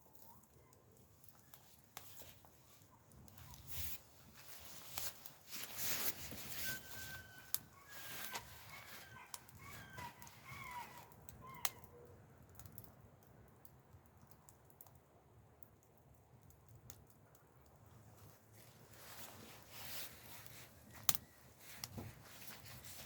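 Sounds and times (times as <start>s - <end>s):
low steady background noise: 0.0s - 23.0s.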